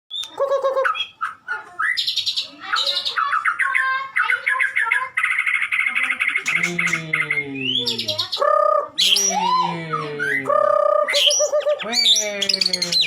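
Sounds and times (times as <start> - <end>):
bird singing whistled phrases: 6.5 - 13.0.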